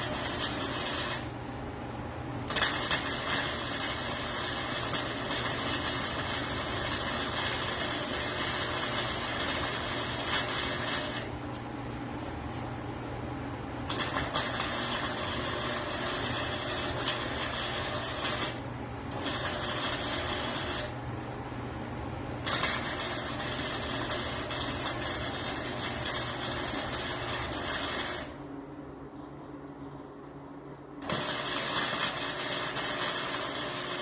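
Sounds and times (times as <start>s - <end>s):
welding arc crackling and hissing: 0.0s - 1.4s, 2.4s - 11.4s, 13.9s - 21.0s, 22.4s - 28.4s, 31.0s - 34.0s
low electrical hum: 0.0s - 34.0s.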